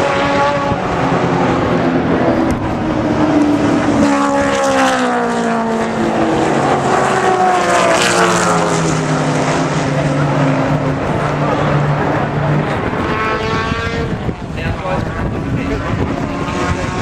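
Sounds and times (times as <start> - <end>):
race cars passing at speed: 0.0 - 17.0.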